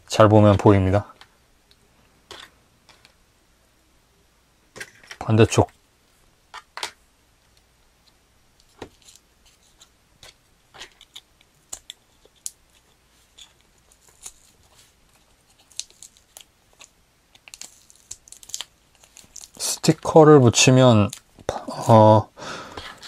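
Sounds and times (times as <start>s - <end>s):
plastic parts clicking and rustling: 4.8s - 5.7s, 6.5s - 19.6s.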